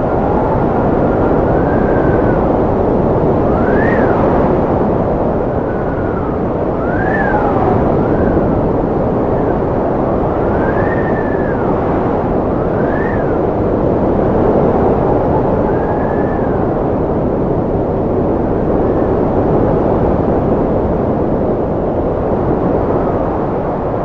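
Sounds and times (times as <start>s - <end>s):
strong wind rushing: 0.0s - 24.0s
whistling wind howl: 0.0s - 24.0s.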